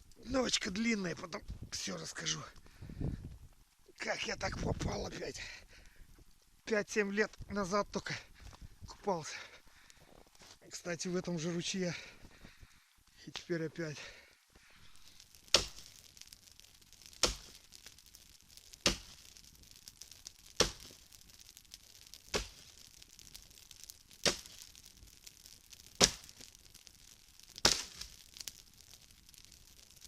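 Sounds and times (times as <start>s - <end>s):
axe chopping dry wood: 17.2s - 17.6s, 18.8s - 19.2s, 27.6s - 28.0s.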